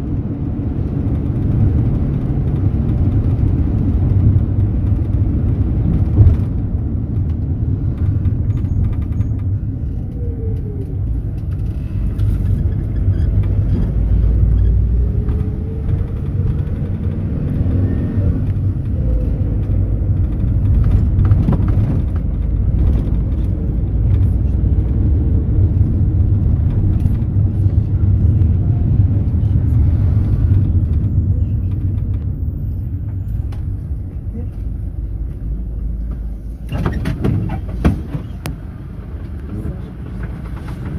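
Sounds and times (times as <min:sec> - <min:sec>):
engine and road rumble in cabin: 0:00.0 - 0:40.9.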